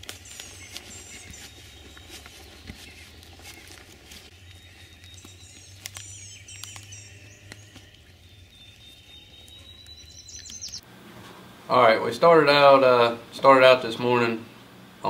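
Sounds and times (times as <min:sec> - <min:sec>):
songbirds chirping: 0:00.0 - 0:10.9
steady low hum: 0:00.0 - 0:15.0.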